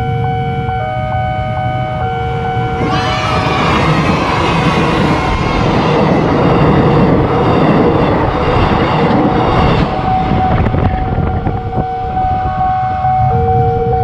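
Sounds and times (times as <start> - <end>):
level crossing warning tones: 0.0 - 14.0
train wheels rumbling on rails: 2.7 - 13.4.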